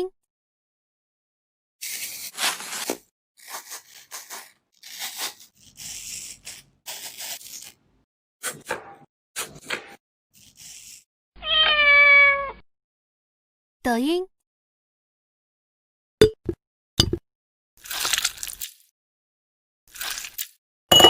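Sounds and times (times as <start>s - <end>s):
scratchy tearing noises: 1.8s - 7.8s, 10.4s - 11.0s.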